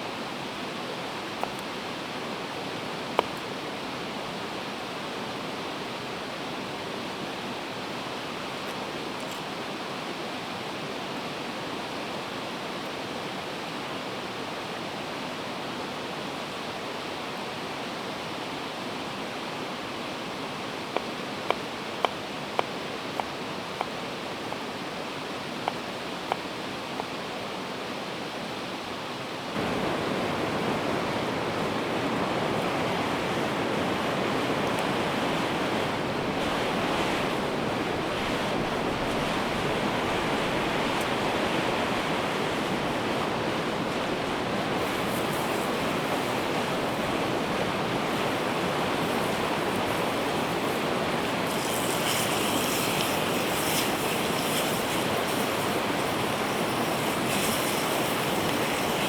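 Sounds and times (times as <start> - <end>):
river water rushing: 18.2 - 59.0.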